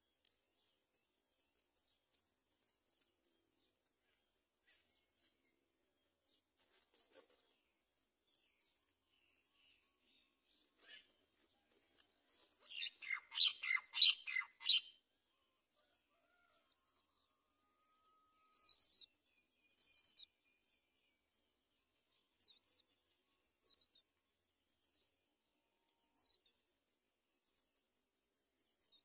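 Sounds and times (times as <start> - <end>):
sharp high bird chirps: 12.7 - 15.0.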